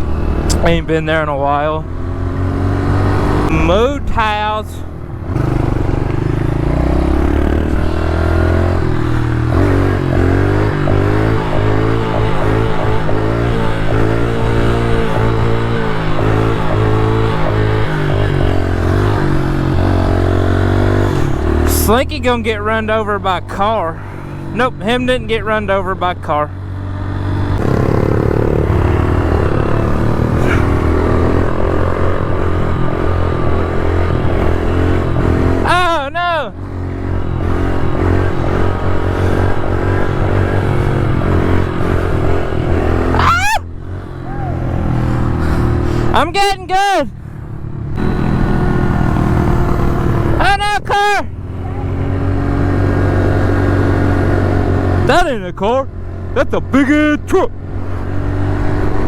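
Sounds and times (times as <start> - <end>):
pit bike engine revving: 0.0 - 59.0
small motorbike engine running: 27.6 - 33.0.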